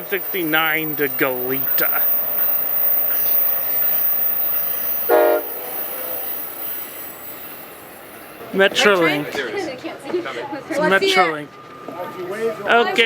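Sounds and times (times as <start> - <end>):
passenger train running past: 0.0 - 13.0
train horn toot: 5.0 - 6.5.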